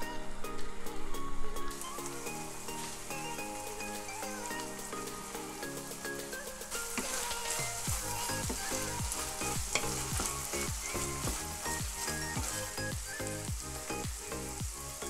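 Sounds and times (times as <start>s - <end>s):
food sizzling in oil: 1.7s - 15.0s
wooden spatula scraping pan: 6.7s - 12.8s.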